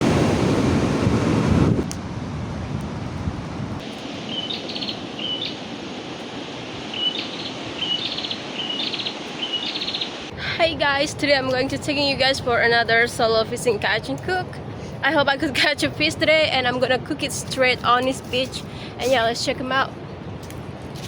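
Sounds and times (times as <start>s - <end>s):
wind buffeting microphone: 0.0s - 21.0s
bird call with rattling trill: 4.3s - 5.6s, 7.0s - 10.2s.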